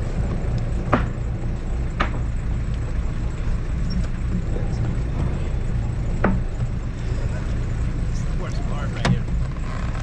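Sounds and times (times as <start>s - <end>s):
boat engine humming: 0.0s - 10.0s
sharp knocks: 0.9s - 1.2s, 2.0s - 2.2s.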